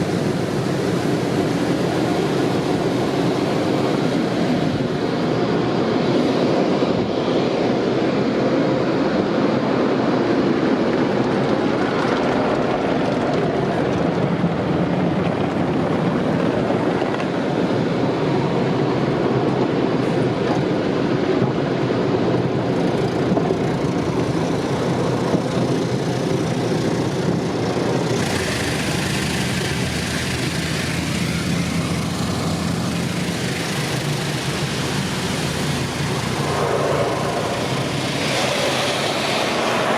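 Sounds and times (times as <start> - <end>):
hissing water spray: 0.0 - 5.2, 22.9 - 39.9
car wash rumbling: 0.0 - 8.2, 9.5 - 39.9.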